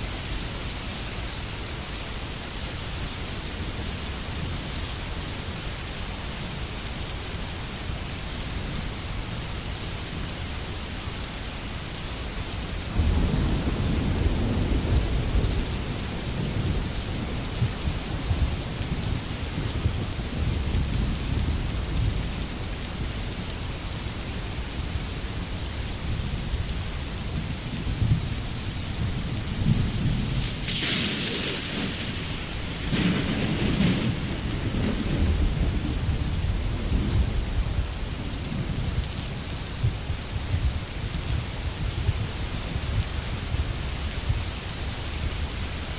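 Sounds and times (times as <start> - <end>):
heavy rain: 0.0 - 45.9
thunder rumbling: 12.9 - 22.6, 27.5 - 40.6.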